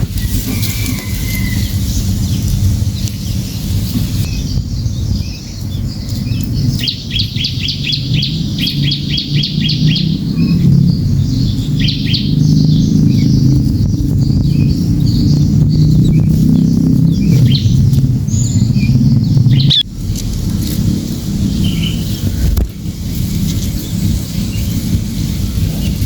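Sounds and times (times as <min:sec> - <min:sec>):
small bird chirping: 0:00.0 - 0:26.0
steady low rumble: 0:00.0 - 0:26.0.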